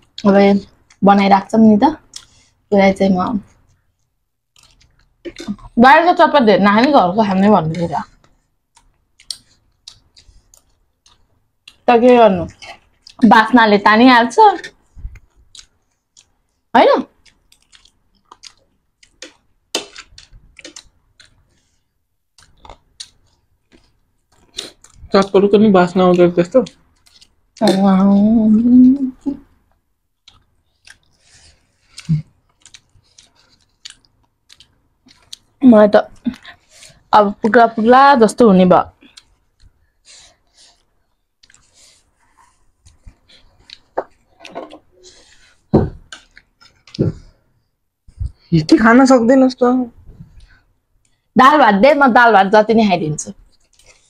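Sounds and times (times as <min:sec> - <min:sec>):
breathing: 0:02.2 - 0:02.7, 0:39.9 - 0:41.0, 0:50.3 - 0:51.3
crunchy chewing: 0:03.5 - 0:05.8, 0:08.0 - 0:11.9, 0:14.6 - 0:25.4, 0:29.4 - 0:37.6, 0:39.0 - 0:47.0, 0:53.5 - 0:54.0.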